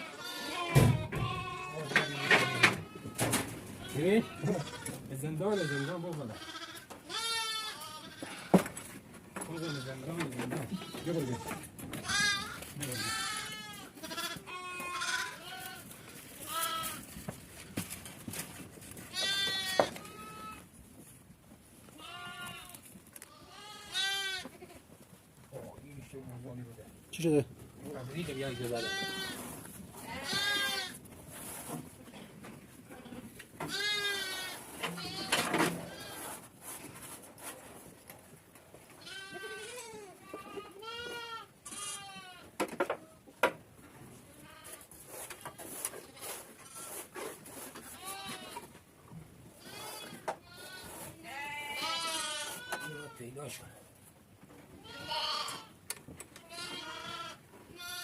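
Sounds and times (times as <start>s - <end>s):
sheep and goats bleating: 0.0s - 8.6s, 9.4s - 10.1s, 10.7s - 17.1s, 19.1s - 20.7s, 21.9s - 24.9s, 28.0s - 31.1s, 32.8s - 36.3s, 39.0s - 42.6s, 44.2s - 44.9s, 45.5s - 47.2s, 47.8s - 48.7s, 49.5s - 53.3s, 54.8s - 55.8s, 56.4s - 58.0s.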